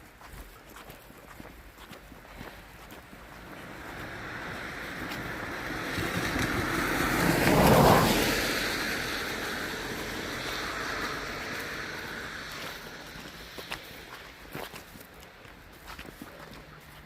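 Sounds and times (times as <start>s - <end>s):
car driving past: 2.9s - 14.6s.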